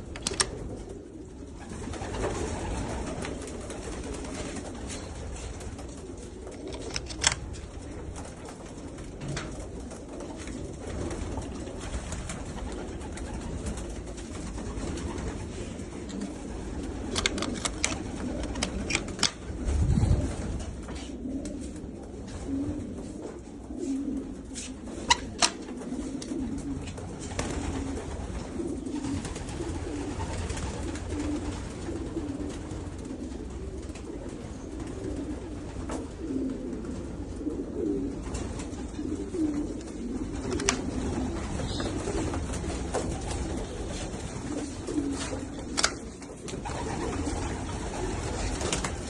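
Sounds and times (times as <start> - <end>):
pigeons cooing: 0.0 - 49.0
sharp clicks: 0.1 - 0.6, 6.6 - 7.5, 17.1 - 19.4, 45.6 - 46.0.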